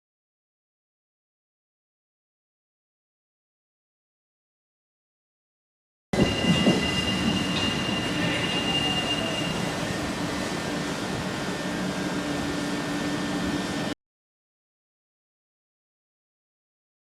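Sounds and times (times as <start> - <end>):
high steady whine: 6.2 - 14.0
train running hum: 6.2 - 14.0.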